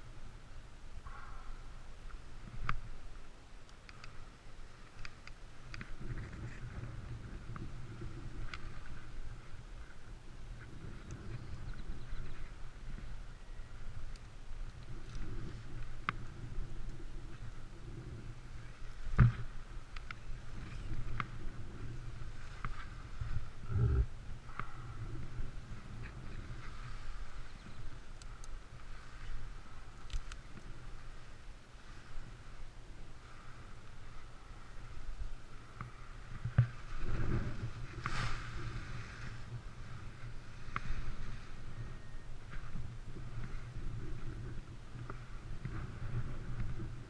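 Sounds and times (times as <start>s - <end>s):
rustling rush: 2.2s - 47.0s
wind buffeting microphone: 4.6s - 47.0s
sharp clicks: 30.0s - 30.7s.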